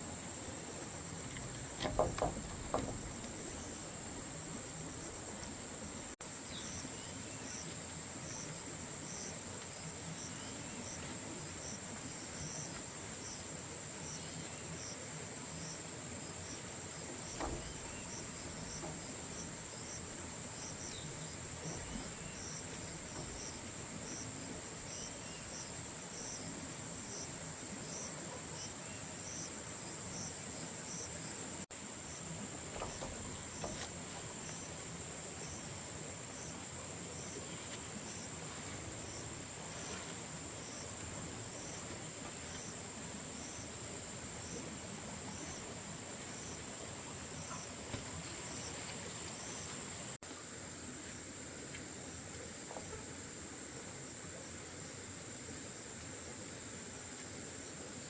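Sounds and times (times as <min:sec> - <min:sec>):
soft knock: 0:01.8 - 0:03.3.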